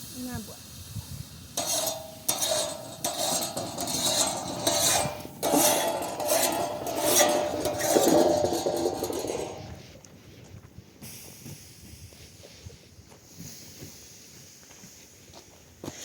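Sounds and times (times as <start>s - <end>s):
metal utensils scraping cookware: 1.6s - 9.8s.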